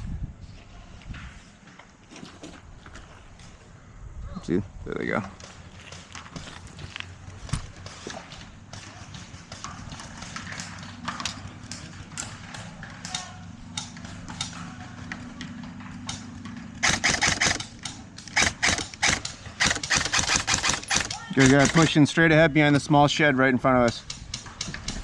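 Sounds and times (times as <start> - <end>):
airsoft guns firing: 16.8 - 22.0.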